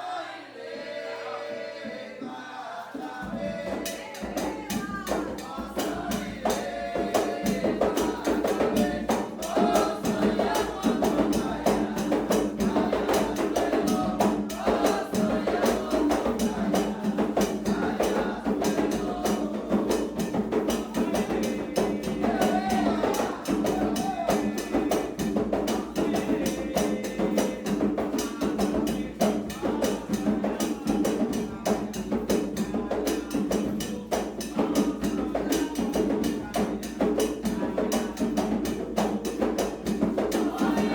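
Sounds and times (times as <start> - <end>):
group of voices chanting: 0.0 - 31.3, 40.0 - 40.9
drums in fast rhythm: 3.2 - 40.9.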